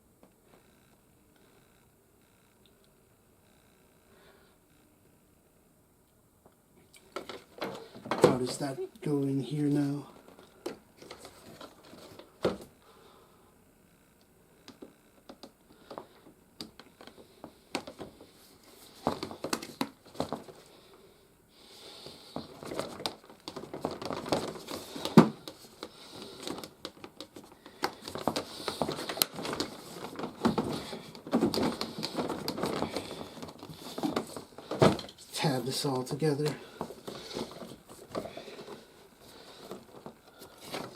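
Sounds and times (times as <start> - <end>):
rustling: 7.0 - 12.4, 17.0 - 40.9.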